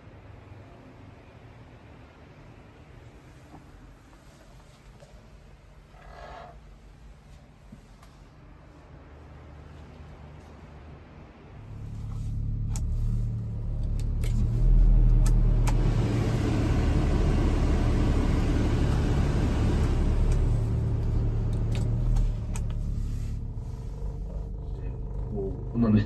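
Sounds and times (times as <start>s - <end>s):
small truck engine running: 11.6s - 26.0s.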